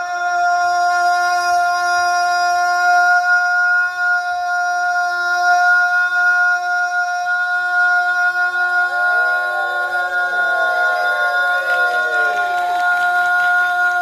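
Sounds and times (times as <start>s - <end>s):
person singing long steady note: 0.0s - 14.0s
voices with sliding pitches: 7.9s - 14.0s.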